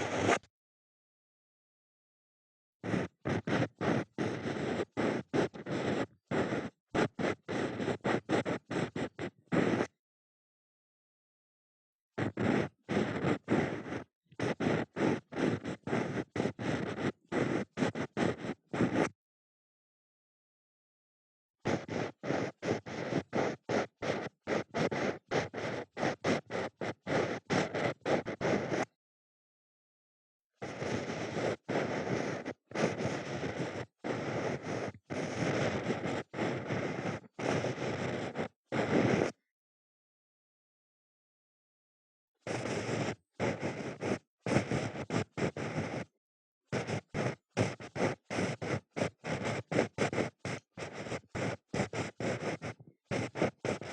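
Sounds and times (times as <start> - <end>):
ear pick scraping in ear: 0.0 - 0.4
ear pick scraping microphone: 0.0 - 0.5, 2.9 - 9.9, 12.2 - 19.1, 21.7 - 29.0, 30.6 - 39.4, 42.5 - 46.1, 46.7 - 53.9.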